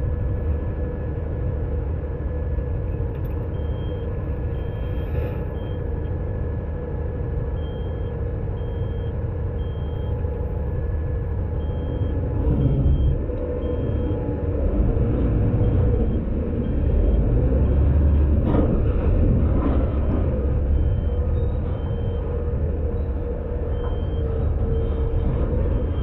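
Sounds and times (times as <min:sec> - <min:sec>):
garbage truck engine running: 0:02.8 - 0:26.0
short high-pitched beeps: 0:03.6 - 0:06.1, 0:07.6 - 0:10.2.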